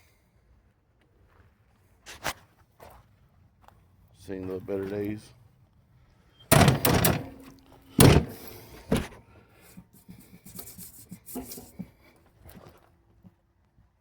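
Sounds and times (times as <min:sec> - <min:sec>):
loud short scrapes: 0:10.0 - 0:12.1.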